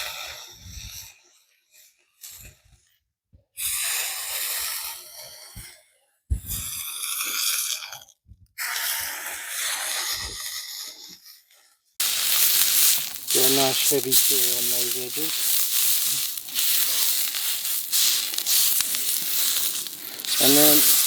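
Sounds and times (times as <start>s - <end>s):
steak sizzling on hot griddle: 12.0s - 21.0s.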